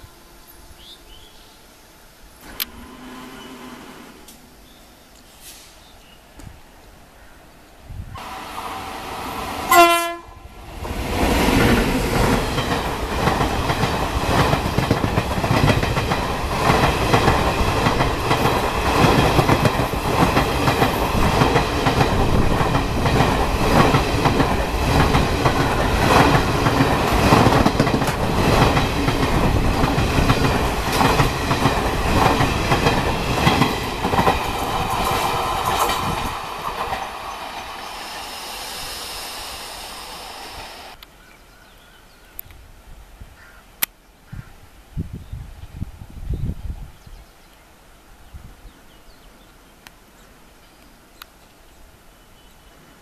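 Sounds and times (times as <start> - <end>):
train coaches rushing past: 2.3 - 6.0, 8.2 - 41.0
locomotive horn blast: 2.7 - 4.3, 9.7 - 10.4.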